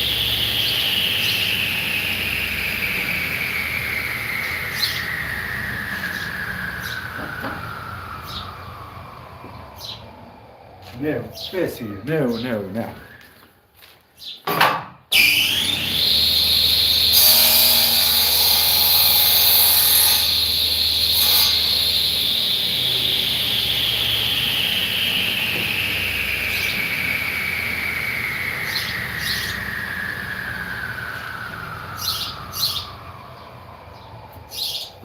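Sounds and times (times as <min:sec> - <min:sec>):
power tool motor whine: 0:00.0 - 0:10.9, 0:15.1 - 0:34.8.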